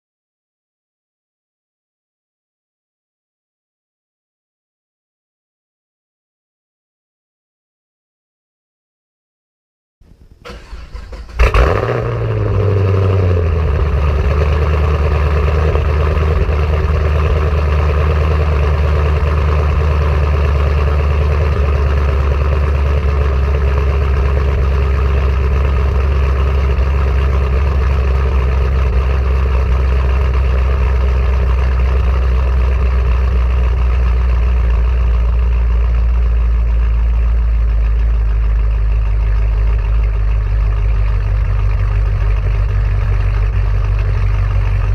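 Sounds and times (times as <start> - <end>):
car engine idling: 10.0 - 44.9.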